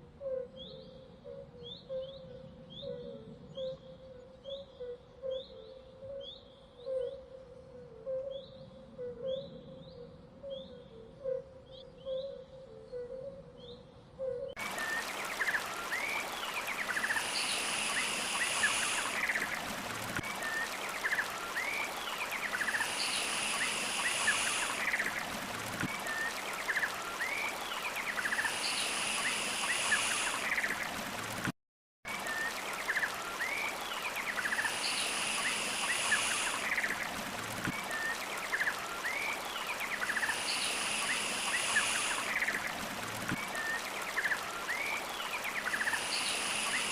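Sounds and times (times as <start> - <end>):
running stream: 14.6 - 31.5, 32.1 - 46.9.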